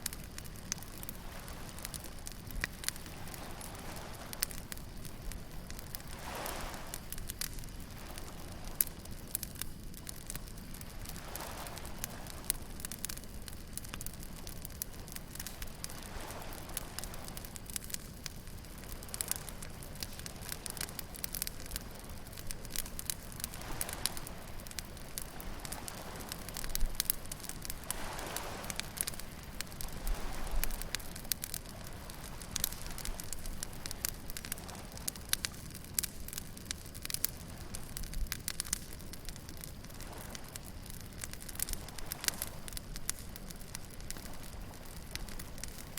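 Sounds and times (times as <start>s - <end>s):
bonfire crackling: 0.0s - 45.9s
waves washing: 5.2s - 8.8s, 10.8s - 12.7s, 18.7s - 35.7s.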